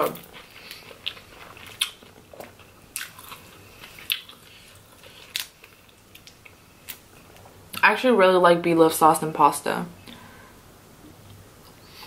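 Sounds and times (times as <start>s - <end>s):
chewing seafood: 0.2s - 7.0s.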